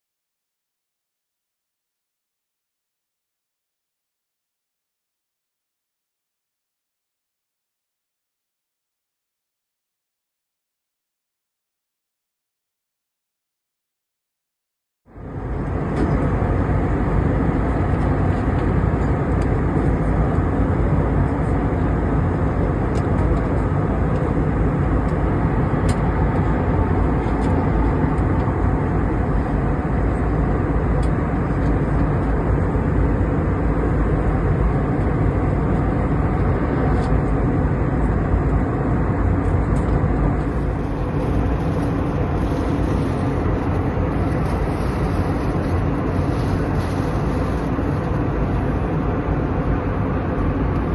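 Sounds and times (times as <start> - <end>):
jet airliner cabin noise: 15.1 - 50.9.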